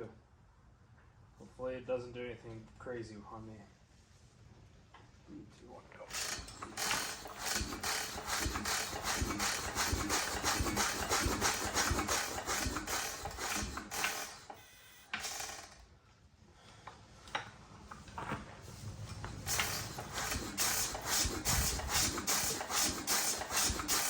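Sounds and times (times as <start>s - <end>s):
engine cranking mechanical clicking: 6.1s - 15.8s, 19.1s - 24.0s.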